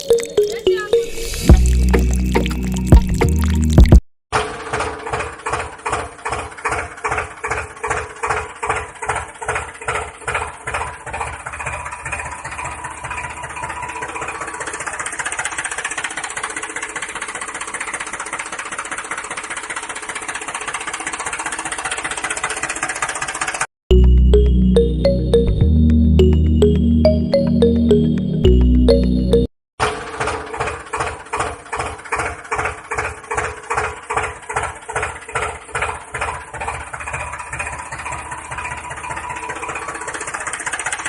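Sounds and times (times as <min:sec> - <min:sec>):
small water pump motor running: 0:04.4 - 0:23.6, 0:30.0 - 0:41.0.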